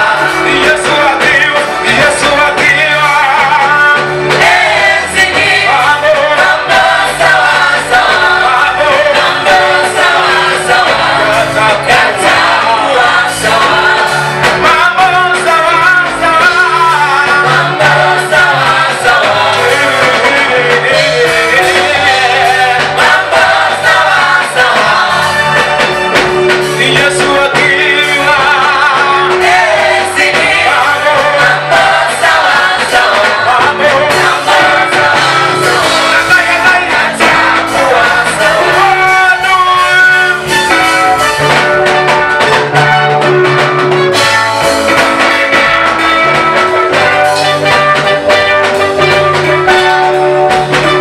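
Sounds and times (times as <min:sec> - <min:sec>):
amplified instruments with beat: 0:00.0 - 0:51.0
group singing gospel song: 0:00.0 - 0:51.0.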